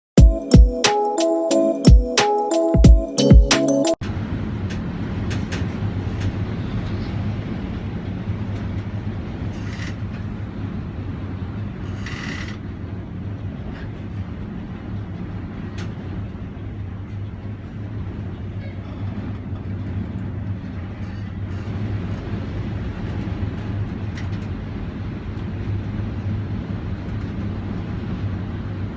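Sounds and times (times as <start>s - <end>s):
intro music: 0.2s - 4.0s.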